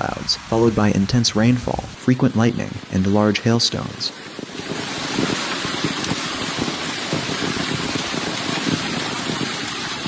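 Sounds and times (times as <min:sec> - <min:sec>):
heavy rain pouring: 0:00.0 - 0:10.0
raindrop impacts knocking: 0:04.3 - 0:10.0.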